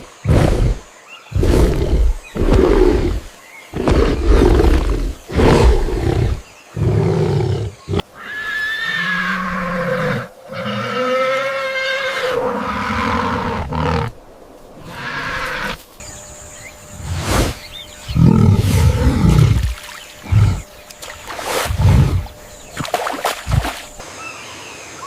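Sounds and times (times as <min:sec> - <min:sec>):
animal roaring: 0:00.2 - 0:08.0, 0:08.9 - 0:14.2, 0:18.2 - 0:20.7.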